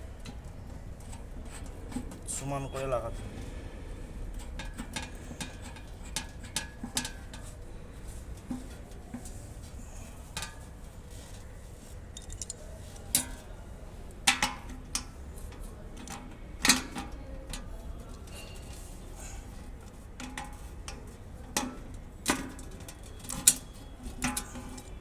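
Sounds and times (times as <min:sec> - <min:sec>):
clicks and clinks of parts handled: 0:12.1 - 0:13.4, 0:20.2 - 0:25.0.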